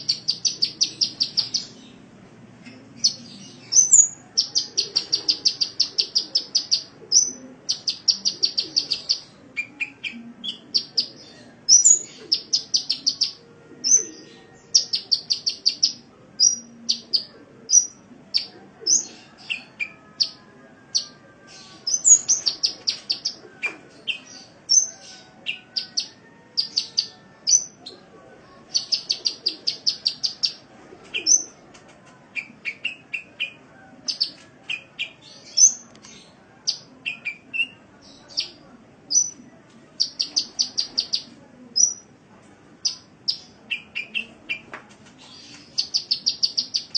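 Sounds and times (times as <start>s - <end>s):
bird song with high chips: 0.0s - 2.0s, 3.0s - 28.0s, 28.7s - 30.6s, 45.3s - 46.9s.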